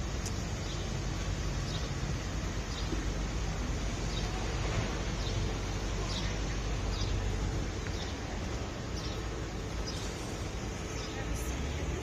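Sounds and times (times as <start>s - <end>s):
outdoor rumble and hiss: 0.0s - 12.0s
small bird chirping: 2.6s - 12.0s.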